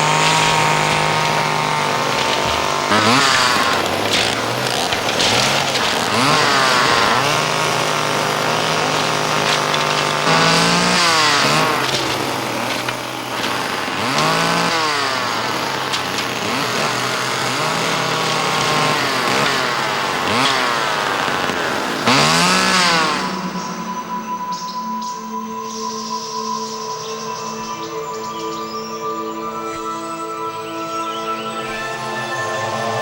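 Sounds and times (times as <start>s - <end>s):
small engine revving: 0.0s - 24.1s, 31.6s - 33.0s.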